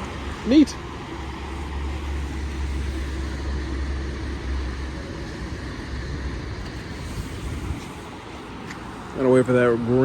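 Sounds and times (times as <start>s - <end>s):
road traffic noise: 0.0s - 10.0s.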